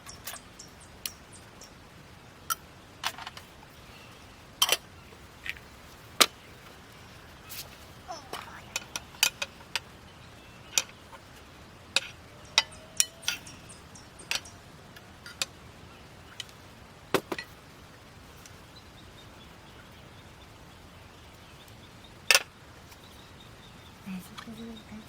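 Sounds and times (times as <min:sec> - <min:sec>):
camping cookware clinking: 0:02.4 - 0:09.9, 0:16.3 - 0:17.7.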